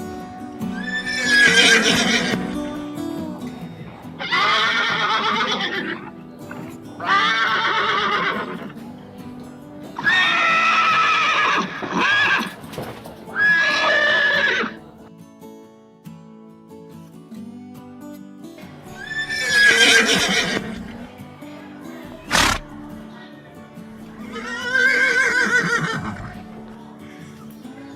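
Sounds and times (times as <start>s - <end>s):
background music: 0.0s - 27.9s
horse neighing: 0.8s - 2.7s, 4.2s - 6.2s, 7.0s - 8.7s, 10.0s - 12.6s, 13.3s - 14.8s, 19.0s - 20.9s, 22.3s - 22.6s, 24.3s - 26.4s.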